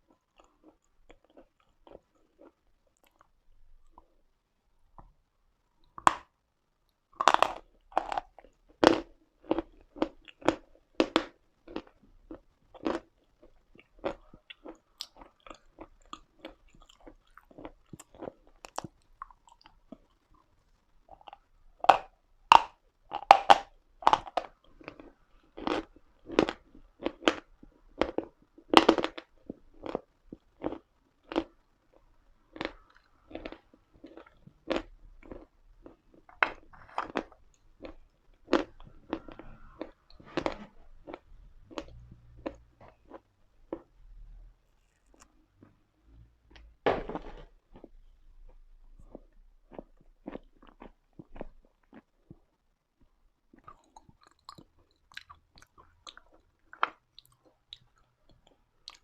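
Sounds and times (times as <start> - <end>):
chalk crunching while chewed: 7.2 - 20.5, 32.5 - 43.9, 53.5 - 59.0.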